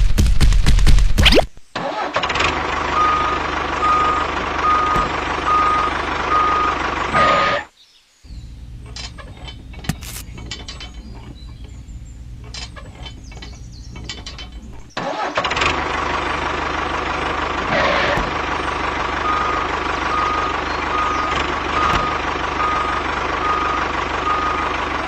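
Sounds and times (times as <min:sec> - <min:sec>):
loud engine noise: 0:01.8 - 0:07.7, 0:08.4 - 0:25.0
reversing alarm beeps: 0:02.9 - 0:06.8, 0:19.2 - 0:24.7.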